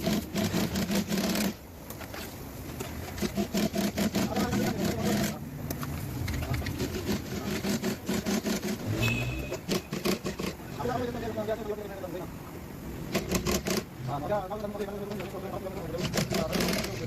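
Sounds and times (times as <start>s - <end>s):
sewing machine clatter: 15.9s - 17.0s.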